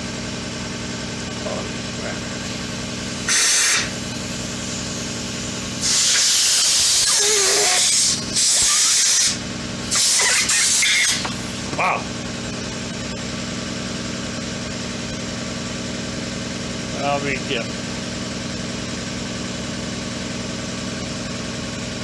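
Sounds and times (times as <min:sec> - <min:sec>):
low machine hum: 0:00.0 - 0:06.2, 0:11.1 - 0:13.5
compressed air blow gun blasts: 0:02.4 - 0:11.7.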